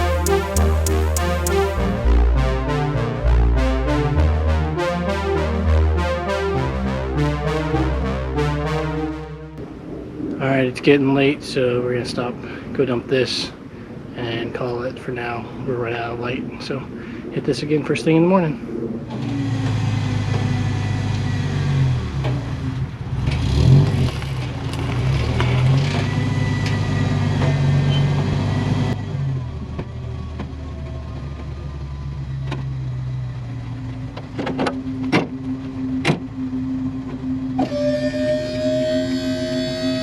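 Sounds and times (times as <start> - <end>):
sharp clicks: 0.0 - 1.8
vehicle engine running: 0.0 - 9.6
steady tone: 0.0 - 10.2, 35.8 - 40.0.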